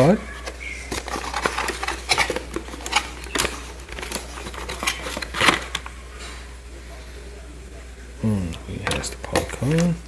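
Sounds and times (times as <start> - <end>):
packaging rustling: 0.0 - 5.9.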